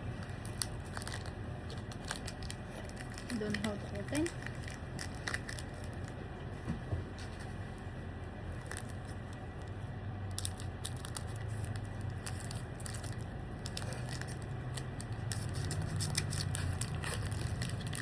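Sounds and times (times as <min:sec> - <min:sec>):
steady low hum: 0:00.0 - 0:18.0
foil wrapper crinkling and tearing: 0:00.2 - 0:06.2, 0:08.5 - 0:18.0.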